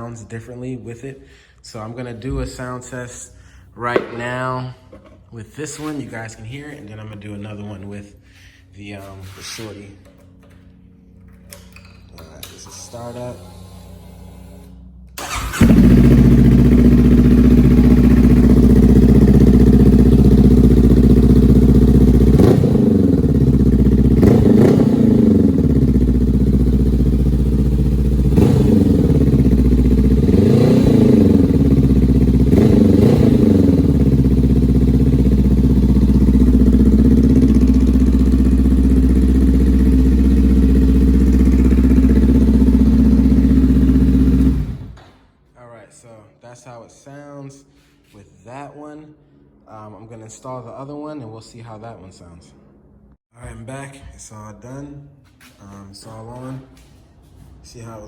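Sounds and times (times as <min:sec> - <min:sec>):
motorcycle engine starting and idling: 0:15.2 - 0:45.1
engine revving blips: 0:22.1 - 0:26.0, 0:28.1 - 0:34.5.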